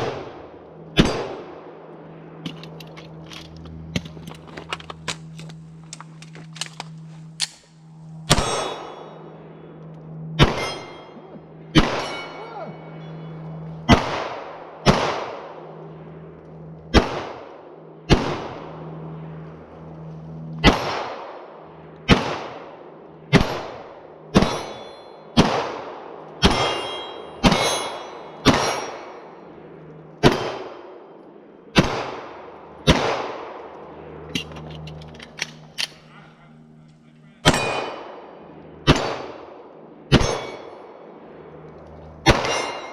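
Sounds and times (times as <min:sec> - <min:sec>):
gunshots ringing off steel targets: 0:01.0 - 0:01.7, 0:07.4 - 0:09.4, 0:10.4 - 0:15.6, 0:23.3 - 0:29.5, 0:30.2 - 0:31.0, 0:37.4 - 0:39.5, 0:40.1 - 0:41.0, 0:42.2 - 0:42.9.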